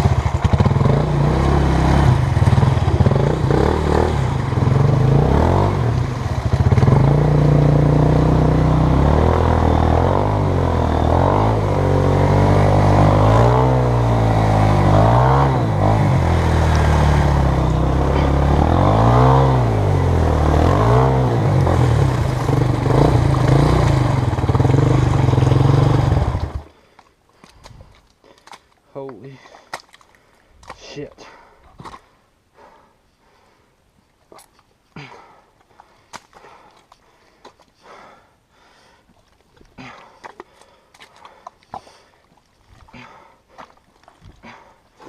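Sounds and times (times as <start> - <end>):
dirt bike engine revving: 0.0 - 26.7.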